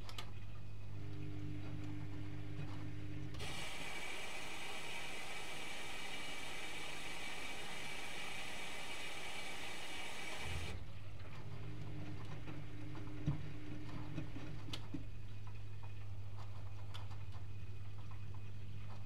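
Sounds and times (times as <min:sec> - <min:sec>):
washing machine low hum: 0:00.0 - 0:16.8
washing machine hiss: 0:03.4 - 0:10.8.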